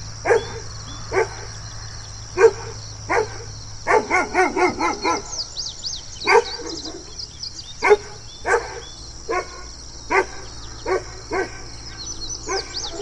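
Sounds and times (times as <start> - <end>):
faint high chirping: 0.0 - 13.0
dog barking: 0.2 - 1.5, 2.4 - 5.4, 6.2 - 7.1, 7.8 - 11.7, 12.5 - 13.0.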